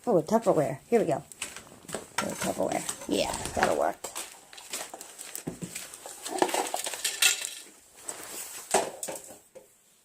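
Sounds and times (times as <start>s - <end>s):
plastic container clattering: 4.7s - 7.8s, 8.6s - 9.5s.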